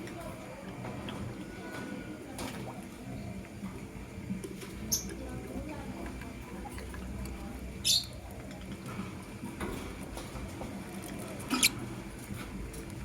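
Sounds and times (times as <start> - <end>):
lovebird chirp: 7.8 - 8.1, 11.5 - 11.7.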